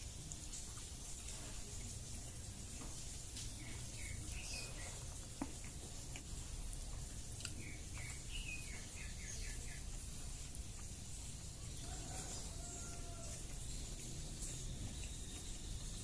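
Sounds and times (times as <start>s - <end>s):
small bird chirping: 3.5s - 5.1s, 7.4s - 10.0s.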